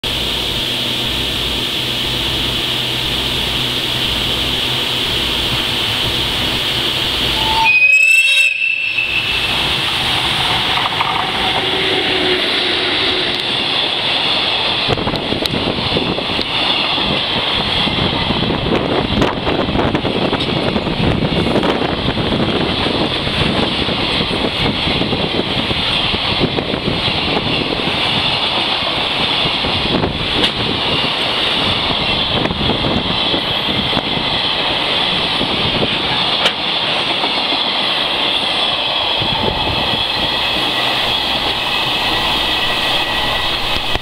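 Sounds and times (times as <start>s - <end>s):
freight train passing: 0.0s - 44.0s
sharp rail clacks: 9.2s - 15.6s, 36.0s - 37.6s.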